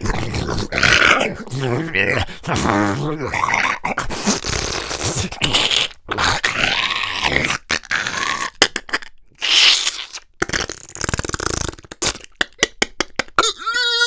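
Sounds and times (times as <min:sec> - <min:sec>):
man growling and snarling: 0:00.0 - 0:08.6.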